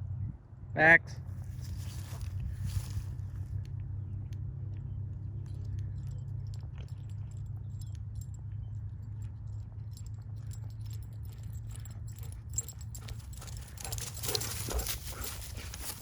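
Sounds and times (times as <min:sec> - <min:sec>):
dog chewing wooden stick: 0:11.7 - 0:16.0.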